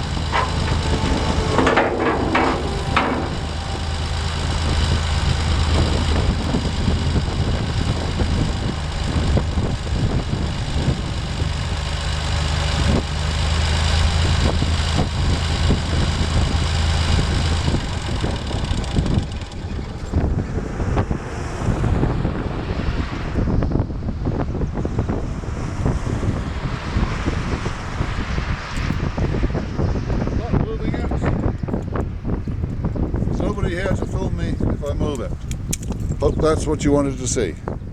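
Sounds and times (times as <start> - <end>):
tractor engine idling: 0.0 - 20.8.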